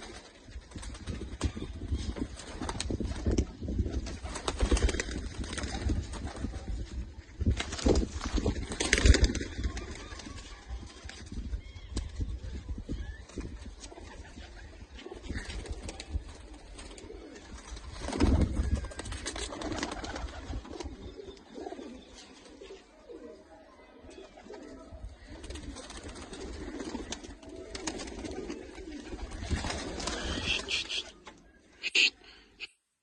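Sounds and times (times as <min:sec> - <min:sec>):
pigeons cooing: 0:18.4 - 0:23.4, 0:24.1 - 0:32.2.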